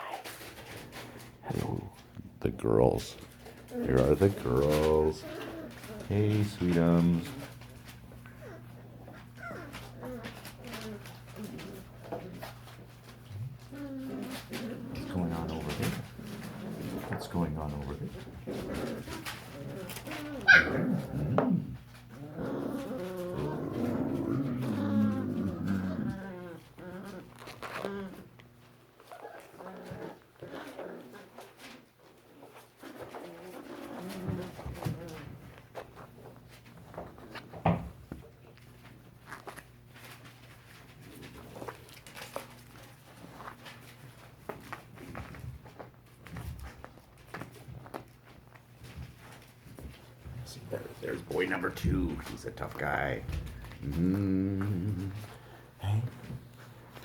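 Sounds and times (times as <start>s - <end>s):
puppies tapping and rustling: 0.0s - 57.0s
puppies whining and yipping: 8.2s - 12.8s, 18.3s - 21.1s, 29.0s - 31.5s
puppy sharp high yelp: 20.4s - 20.8s.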